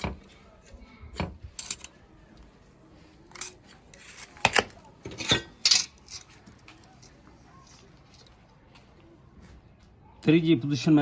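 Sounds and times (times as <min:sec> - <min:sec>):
metal tools clinking and scraping: 0:01.2 - 0:02.0, 0:03.3 - 0:08.4.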